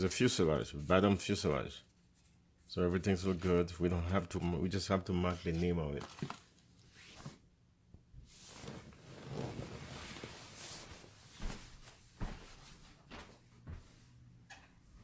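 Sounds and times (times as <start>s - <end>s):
parts rustling on a table: 5.3s - 7.4s.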